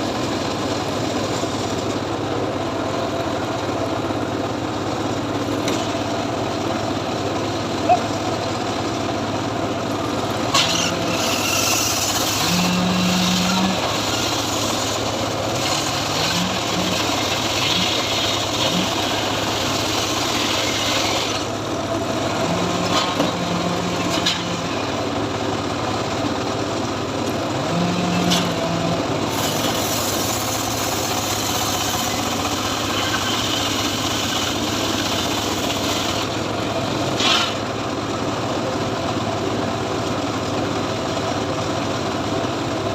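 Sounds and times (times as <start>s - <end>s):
saw engine running: 0.0s - 42.8s
blade sawing through wood: 10.5s - 21.6s, 27.7s - 36.5s, 37.1s - 37.6s.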